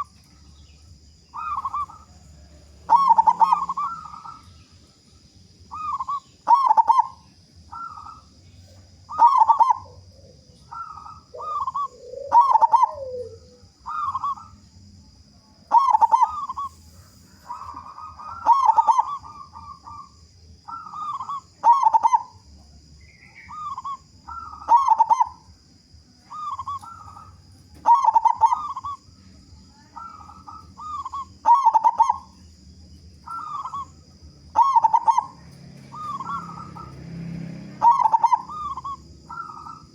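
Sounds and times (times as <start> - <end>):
dove cooing: 0.0 - 5.0, 5.6 - 14.8, 15.6 - 39.9.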